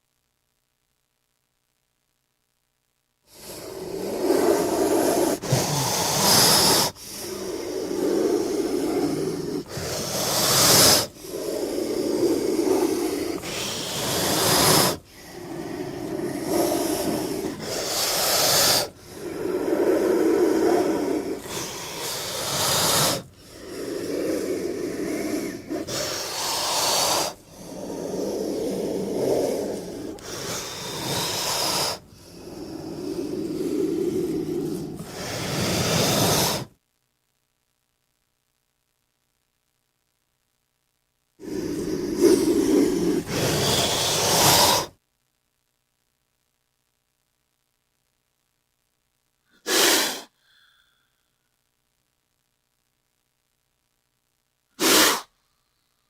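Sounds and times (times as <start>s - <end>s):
snake hissing: 3.3s - 36.7s, 41.4s - 45.0s, 49.6s - 51.0s, 54.8s - 55.4s.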